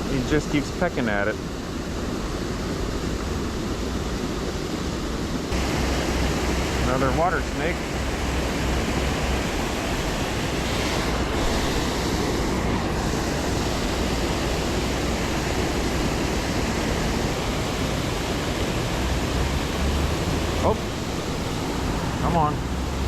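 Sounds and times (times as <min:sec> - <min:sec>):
small waterfall rushing: 0:05.5 - 0:23.0.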